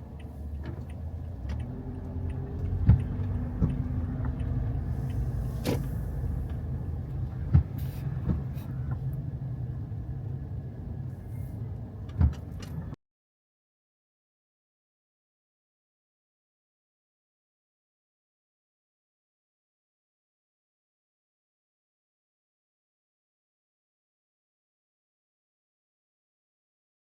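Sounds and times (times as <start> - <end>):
car driving low rumble: 0.0 - 13.0.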